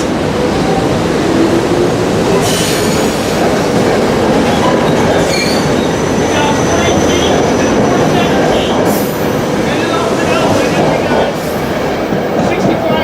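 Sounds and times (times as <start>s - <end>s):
train wheels rumbling on rail: 0.0s - 13.0s
wheel squeal: 4.6s - 6.0s.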